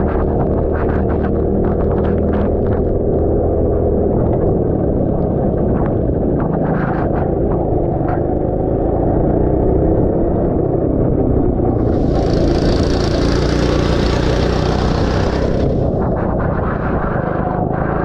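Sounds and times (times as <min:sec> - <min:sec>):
wind buffeting: 0:10.1 - 0:18.0
hiss: 0:11.8 - 0:15.8
go-kart engine running: 0:11.8 - 0:16.1.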